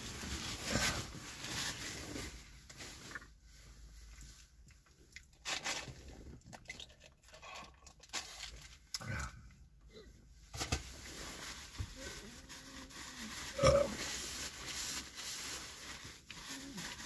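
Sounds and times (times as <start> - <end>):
paper crinkling and tearing: 11.1 - 17.0.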